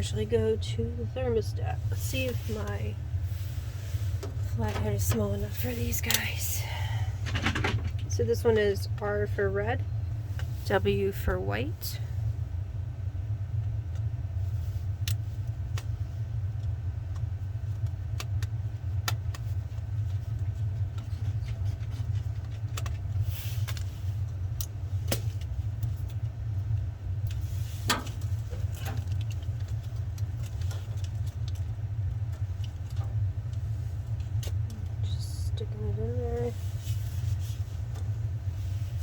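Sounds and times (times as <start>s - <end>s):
steady low rumble: 0.0s - 39.0s.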